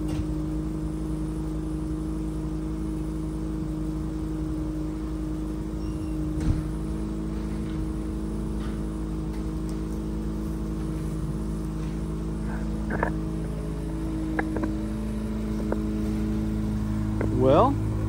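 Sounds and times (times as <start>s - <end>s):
rotary engine idling: 0.0s - 18.0s
light clicks and knocks: 14.3s - 14.8s.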